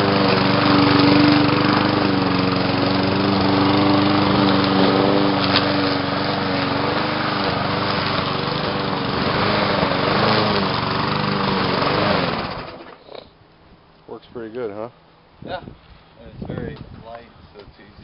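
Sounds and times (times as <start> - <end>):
lawnmower engine at full throttle: 0.0 - 13.2.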